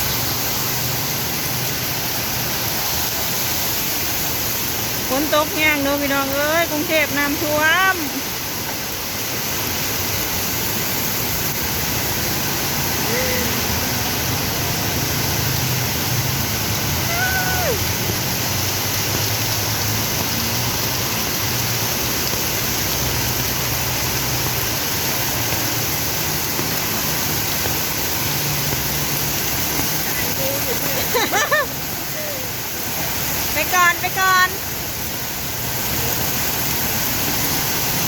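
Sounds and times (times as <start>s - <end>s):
heavy rain pouring: 0.0s - 38.0s.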